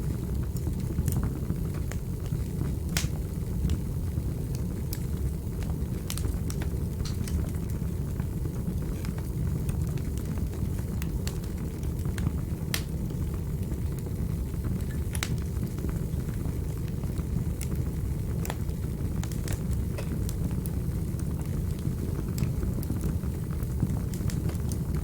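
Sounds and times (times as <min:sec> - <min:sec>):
fire crackles and pops: 0:00.0 - 0:25.0
fire rumbling in a fireplace: 0:00.0 - 0:25.0.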